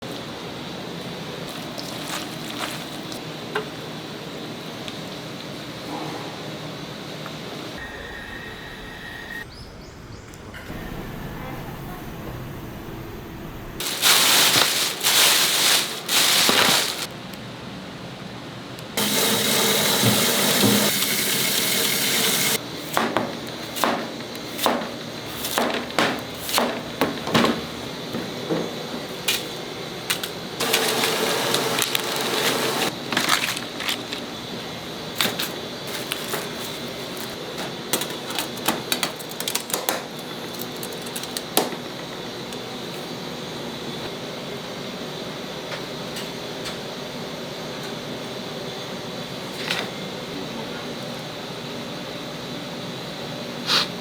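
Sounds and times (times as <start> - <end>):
utensils clicking and knocking: 22.9 - 34.3, 35.2 - 42.7.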